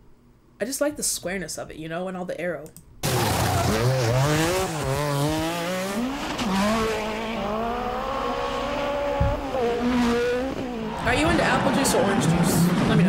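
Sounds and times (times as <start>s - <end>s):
rally car engine revving: 3.0s - 13.0s
tyre and road noise: 3.0s - 13.0s.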